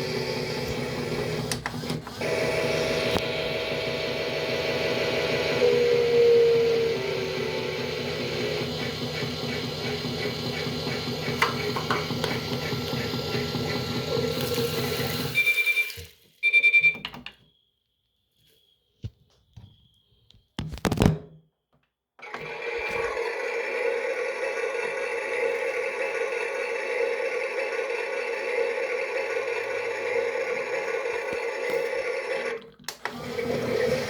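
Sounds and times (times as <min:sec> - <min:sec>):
short electronic beeps: 0:15.3 - 0:17.0.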